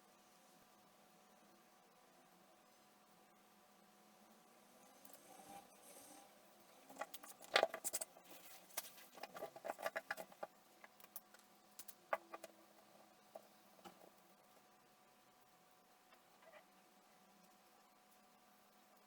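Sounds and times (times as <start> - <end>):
small hard objects clicking: 8.7 - 12.6.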